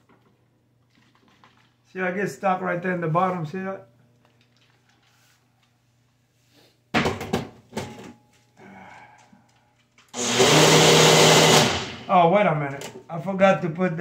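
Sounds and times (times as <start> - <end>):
blender motor running: 10.2 - 12.0.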